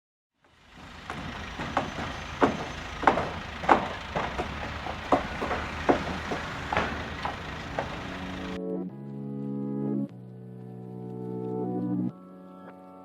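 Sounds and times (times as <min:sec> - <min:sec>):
low engine hum: 0:00.5 - 0:08.6
sharp knocks: 0:00.5 - 0:08.6.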